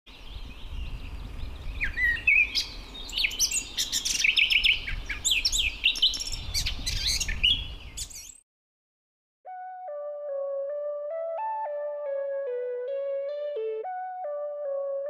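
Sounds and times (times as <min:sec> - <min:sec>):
small birds chirping: 0:00.1 - 0:08.4.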